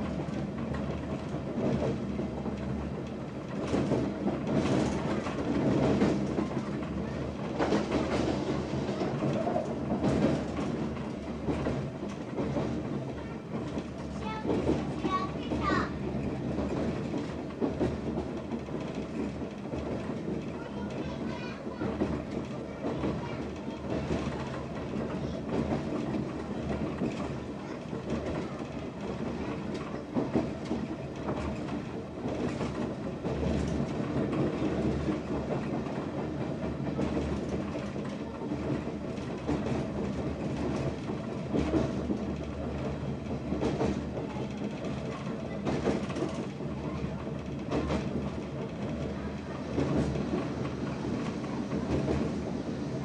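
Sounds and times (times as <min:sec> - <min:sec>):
electric train rumble: 0:00.0 - 0:53.0
wheels clacking over rail joints: 0:00.3 - 0:52.9.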